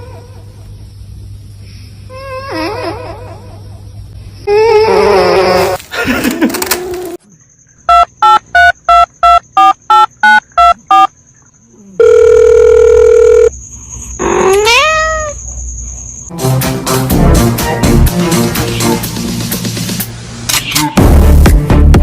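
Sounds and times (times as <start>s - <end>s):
phone line tone: 7.9s - 11.1s, 12.0s - 13.5s
touch-tone keypad beeps: 7.9s - 11.1s
cat meowing: 14.4s - 15.4s.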